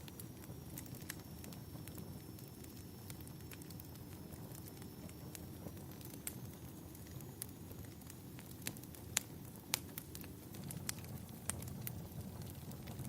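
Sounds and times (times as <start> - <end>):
fire crackling and popping: 0.0 - 13.0
low steady rumble: 6.7 - 13.0.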